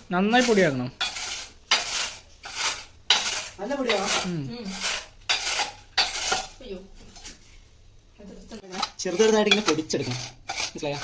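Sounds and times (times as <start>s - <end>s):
utensils knocking on bowl: 8.7s - 11.0s.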